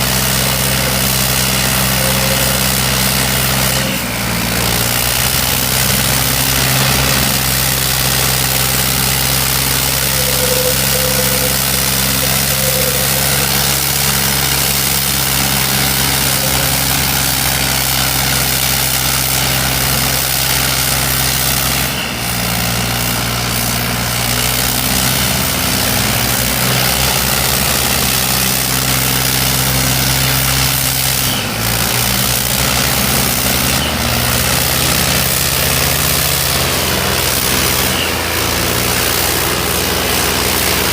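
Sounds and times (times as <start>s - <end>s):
diesel tractor engines running: 0.0s - 40.9s.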